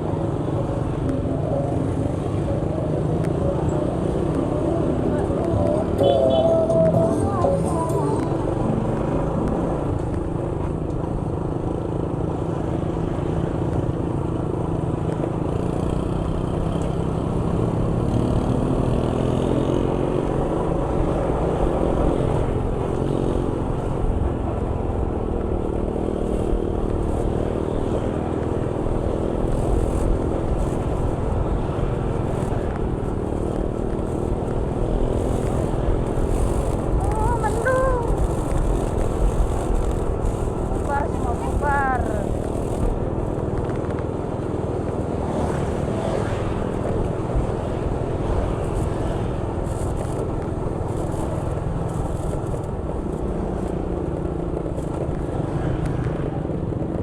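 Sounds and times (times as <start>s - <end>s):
road and wind noise: 0.0s - 57.0s
vehicle engine running: 21.0s - 45.6s.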